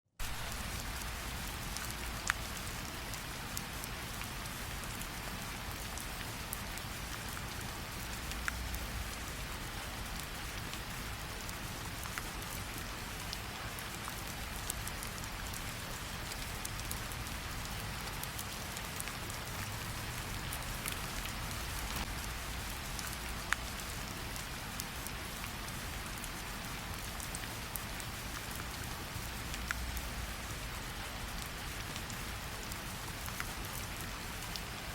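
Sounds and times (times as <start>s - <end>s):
rain hissing: 0.2s - 4.7s, 14.3s - 26.7s, 28.0s - 33.2s.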